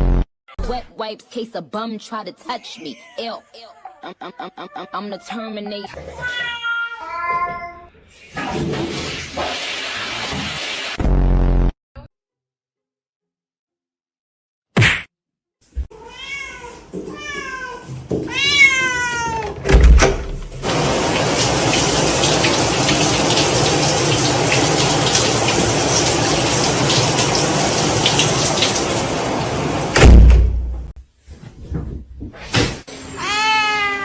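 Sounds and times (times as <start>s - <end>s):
cat meowing: 2.8s - 8.0s, 15.9s - 19.6s, 33.2s - 34.0s
loud thump: 30.0s - 30.9s.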